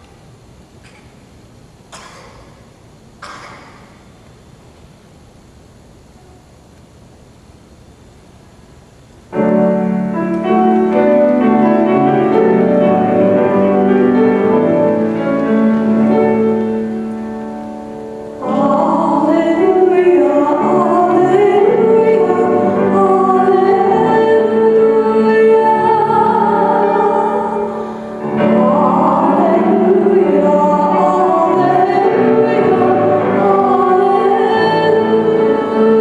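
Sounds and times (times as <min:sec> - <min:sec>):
keyboard playing sustained chords: 0:09.3 - 0:36.0
person singing: 0:18.4 - 0:36.0.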